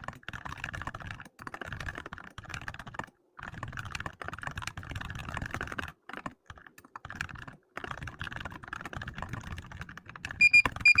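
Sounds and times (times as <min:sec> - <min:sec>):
keyboard typing: 0:00.0 - 0:11.0
timer beeping: 0:10.4 - 0:11.0.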